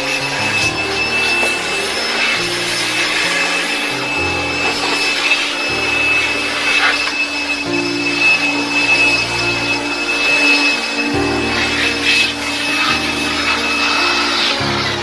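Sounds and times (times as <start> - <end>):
rubbing and scraping: 0.0 - 7.6
background music low notes: 0.0 - 15.0.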